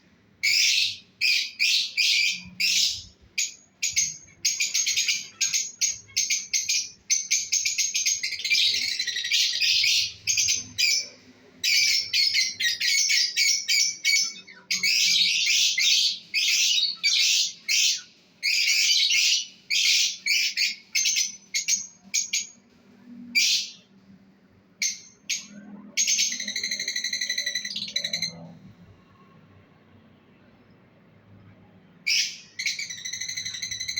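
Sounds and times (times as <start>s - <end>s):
lovebirds chirping: 0.4s - 22.6s.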